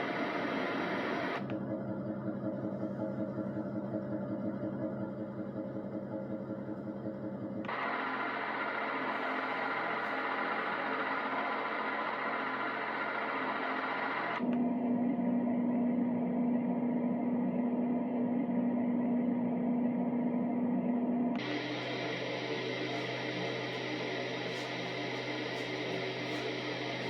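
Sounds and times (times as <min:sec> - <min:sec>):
white noise machine hiss: 0:00.0 - 0:01.4, 0:07.7 - 0:14.4, 0:21.4 - 0:27.0
dull noise with low hum: 0:00.0 - 0:04.5, 0:06.6 - 0:27.0.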